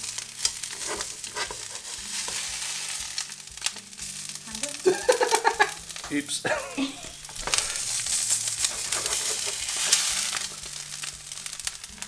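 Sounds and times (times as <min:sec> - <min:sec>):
food sizzling in a frying pan: 0:00.0 - 0:12.0
metal spatula scraping: 0:00.1 - 0:03.4, 0:07.1 - 0:11.8.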